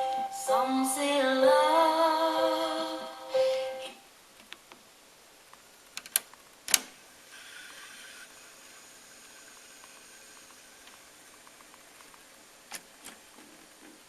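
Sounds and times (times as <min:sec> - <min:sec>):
faint mechanical whirr: 0:03.9 - 0:14.0.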